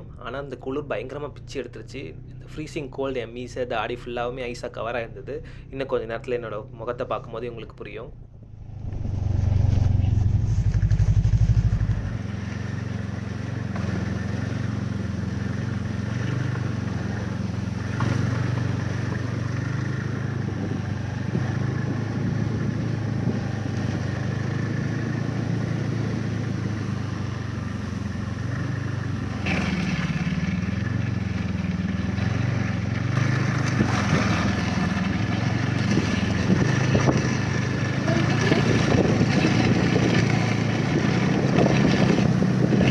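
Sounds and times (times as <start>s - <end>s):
snowmobile engine running: 8.4s - 42.9s.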